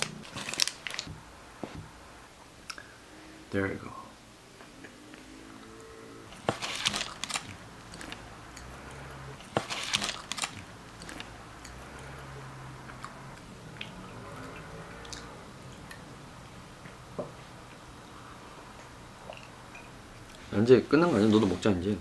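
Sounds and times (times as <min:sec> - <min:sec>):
crunchy bites: 0:00.0 - 0:03.0, 0:04.6 - 0:16.1
chewing with small clicks: 0:06.9 - 0:17.0, 0:18.7 - 0:20.4.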